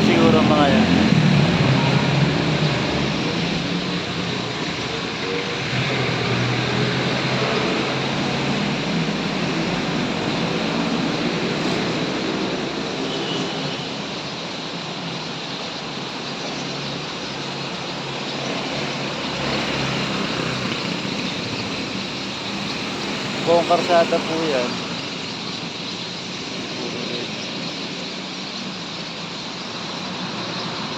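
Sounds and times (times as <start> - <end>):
engine running steadily: 0.0 - 13.1
vehicles passing: 0.0 - 30.9.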